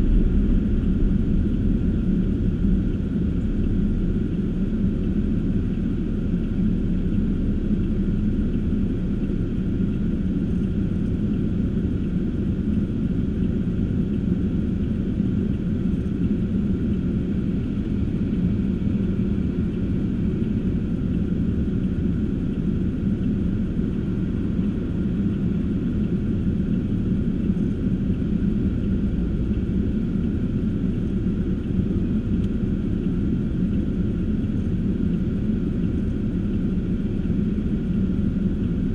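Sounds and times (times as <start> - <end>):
road noise: 0.0 - 13.9
car engine rumble: 0.0 - 38.9.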